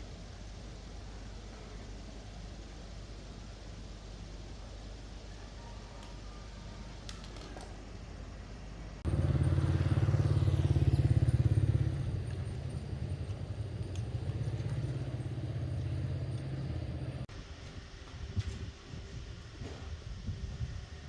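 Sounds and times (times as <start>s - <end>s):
air compressor pulsing: 9.1s - 17.3s.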